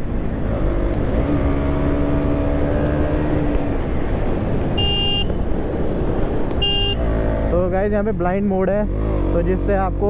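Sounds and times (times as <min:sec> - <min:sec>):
wind and road noise: 0:00.0 - 0:10.0.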